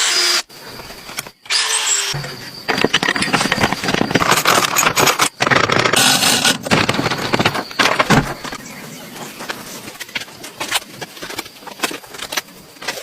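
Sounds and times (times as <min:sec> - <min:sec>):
scraping and clattering: 0:02.2 - 0:08.7.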